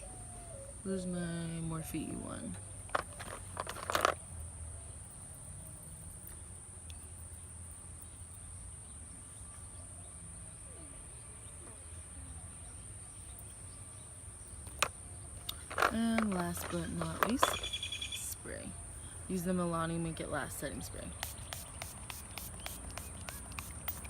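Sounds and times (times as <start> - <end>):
insects trilling: 0.0 - 24.0
handling noise clatter: 2.9 - 4.2, 15.5 - 17.9.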